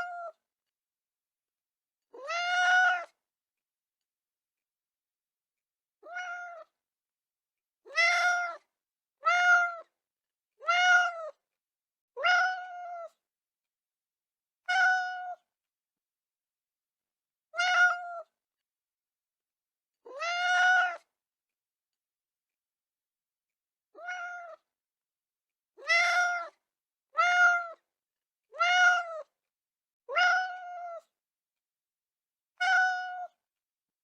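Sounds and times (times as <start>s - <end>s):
cat meowing: 0.0s - 0.4s, 2.2s - 3.2s, 6.0s - 6.8s, 7.9s - 9.9s, 10.6s - 11.4s, 12.2s - 13.2s, 14.7s - 15.4s, 17.6s - 18.3s, 20.1s - 21.1s, 23.9s - 24.7s, 25.8s - 27.8s, 28.5s - 29.3s, 30.1s - 31.1s, 32.6s - 33.4s.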